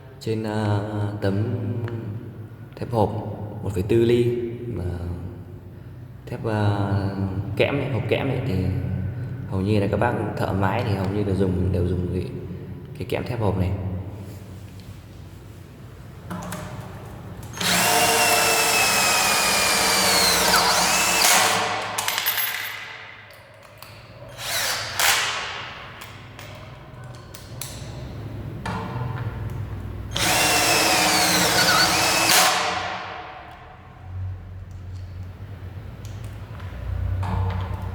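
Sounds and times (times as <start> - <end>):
cordless drill driving screws into steel: 17.4 - 22.3, 24.3 - 25.7, 30.1 - 33.2.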